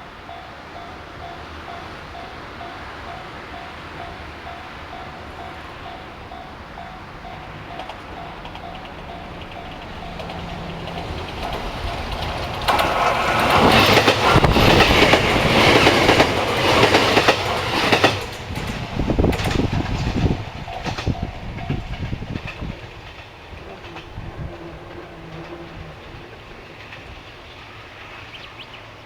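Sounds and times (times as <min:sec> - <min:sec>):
train passing: 0:00.0 - 0:29.0
rhythmic wheel clacks: 0:07.8 - 0:24.0.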